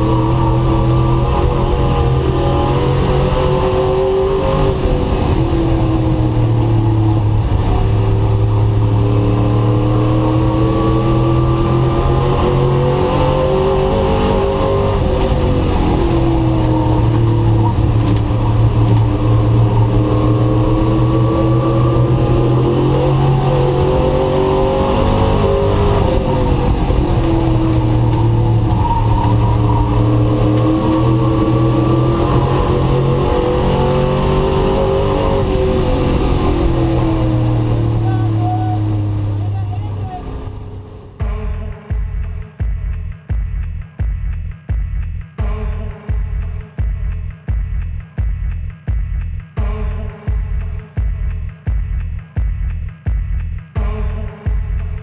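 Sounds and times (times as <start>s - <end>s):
race truck engine: 0.0s - 41.7s.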